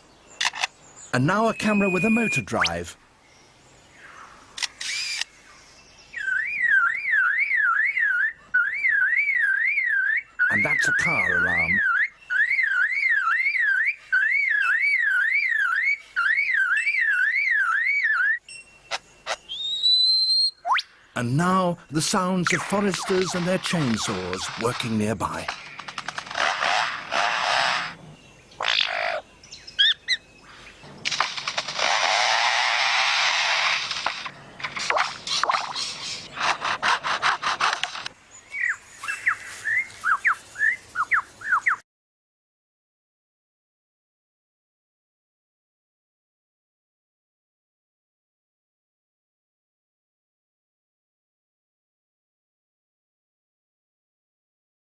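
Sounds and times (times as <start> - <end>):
bird mimicking car alarm: 0.4 - 2.9, 6.2 - 20.9, 21.5 - 28.0, 28.6 - 30.3
bird mimicking chainsaw rasping: 4.6 - 5.3, 22.2 - 29.2, 29.8 - 38.1.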